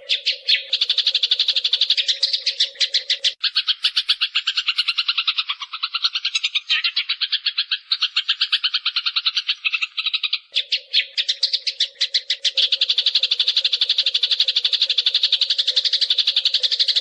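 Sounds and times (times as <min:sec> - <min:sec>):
sparrow chirping rapidly: 0:00.0 - 0:17.0.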